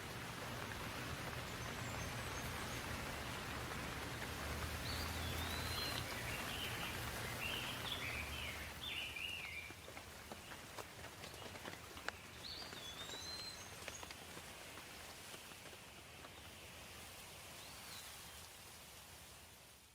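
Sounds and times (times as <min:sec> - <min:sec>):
water drips: 0:00.0 - 0:14.4
rain falling: 0:00.0 - 0:19.9
songbird warbling: 0:04.7 - 0:09.7.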